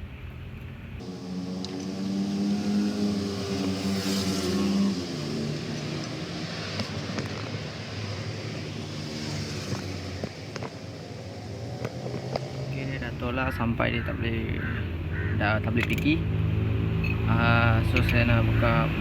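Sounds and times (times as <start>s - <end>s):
vehicle engine running: 11.6s - 19.0s.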